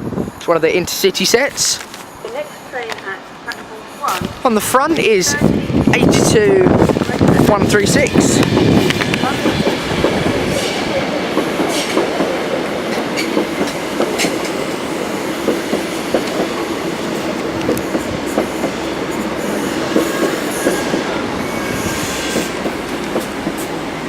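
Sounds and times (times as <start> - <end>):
train wheels clicking over rail joints: 6.1 - 24.0.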